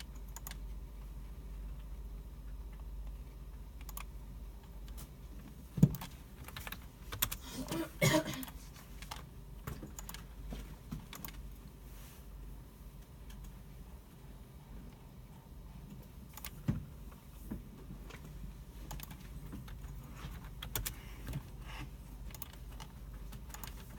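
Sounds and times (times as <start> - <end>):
keyboard typing: 0.0 - 0.8, 2.7 - 5.0, 5.8 - 7.7, 8.3 - 11.6, 16.2 - 16.8, 18.8 - 23.9
steady low hum: 0.0 - 23.9
mouse clicks: 3.8 - 4.1.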